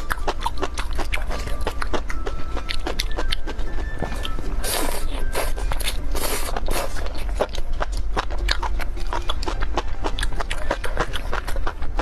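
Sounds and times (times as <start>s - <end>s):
wet chewing smacks and clicks: 0.0s - 4.4s, 5.3s - 12.0s
low hum: 0.0s - 12.0s
person slurping: 4.6s - 7.4s.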